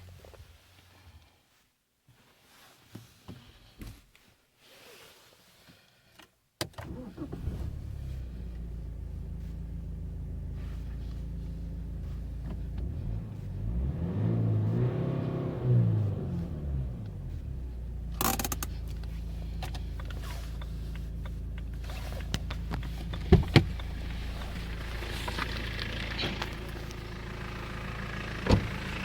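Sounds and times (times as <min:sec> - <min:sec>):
diesel engine starting and idling: 0:06.8 - 0:29.0.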